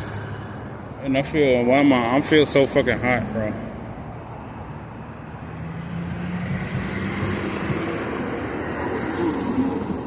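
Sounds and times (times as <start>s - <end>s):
vehicle passing close by: 5.0s - 10.0s.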